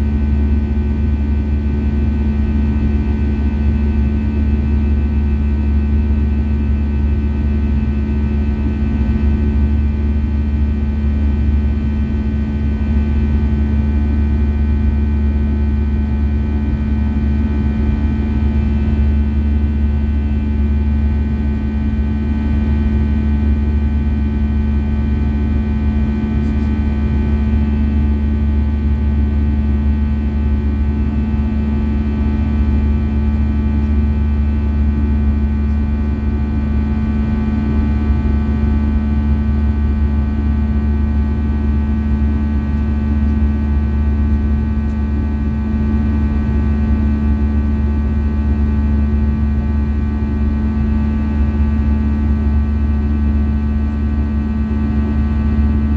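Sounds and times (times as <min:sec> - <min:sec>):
airplane cabin drone: 0:00.0 - 0:55.9.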